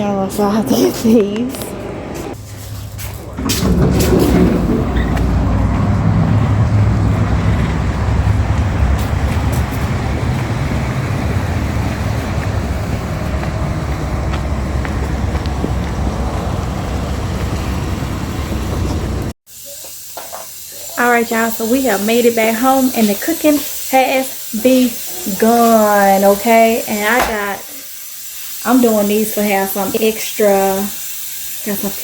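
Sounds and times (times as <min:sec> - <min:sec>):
car road and engine noise: 0:01.3 - 0:19.4.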